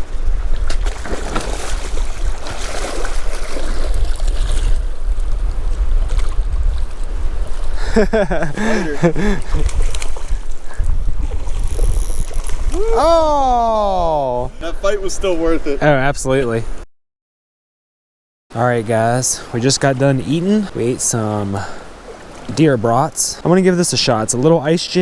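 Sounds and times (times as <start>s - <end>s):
flowing creek: 0.0s - 16.7s, 18.5s - 25.0s
wind buffeting microphone: 0.0s - 16.8s
person's voice: 12.8s - 16.6s.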